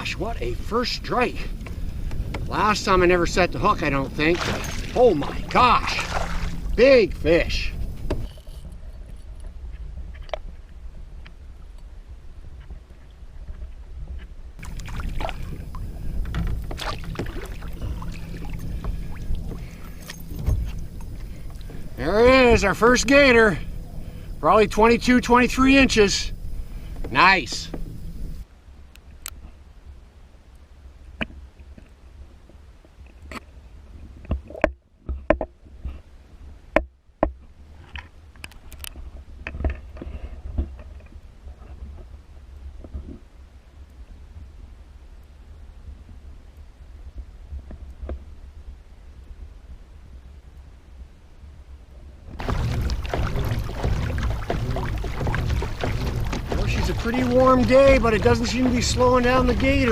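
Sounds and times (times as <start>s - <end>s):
water splashing: 0.0s - 8.6s, 14.6s - 28.4s, 52.4s - 59.9s
steady low rumble: 0.0s - 12.3s, 14.6s - 28.6s, 52.4s - 59.9s
knocks and rattles against boat: 0.2s - 8.7s, 13.5s - 28.4s, 52.4s - 59.9s.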